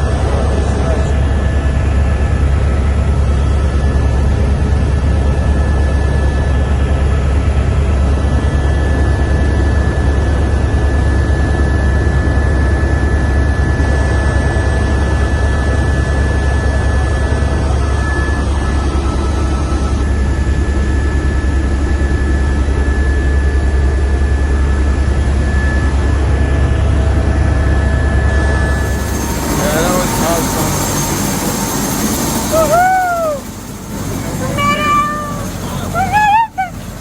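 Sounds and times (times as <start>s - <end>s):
helicopter engine and rotor rumble: 0.0s - 37.0s
thin steady whine: 9.9s - 37.0s.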